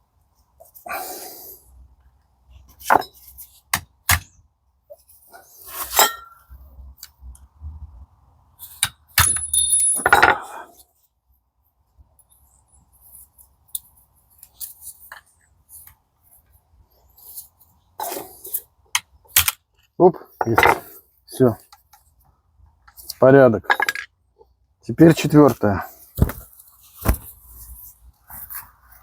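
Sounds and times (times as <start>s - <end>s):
metallic ring: 5.9s - 6.5s, 9.2s - 10.2s
steel gear parts clinking: 8.8s - 10.4s.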